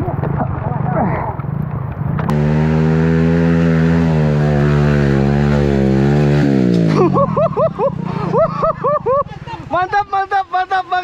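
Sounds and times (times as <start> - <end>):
rough outdoor noise: 0.0 - 11.0
motorcycle engine at high revs: 2.3 - 9.2.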